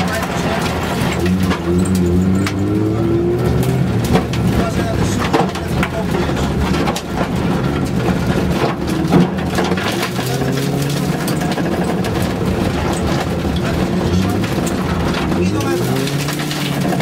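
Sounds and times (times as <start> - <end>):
car engine revving: 0.0 - 17.0
knocks and clatter from rough road: 0.0 - 17.0.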